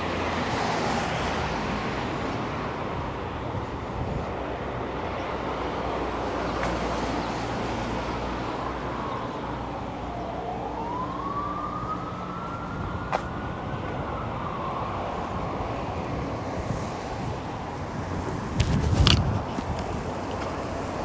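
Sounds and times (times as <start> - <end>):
road traffic hum: 0.0 - 21.0
siren wailing: 8.6 - 17.4.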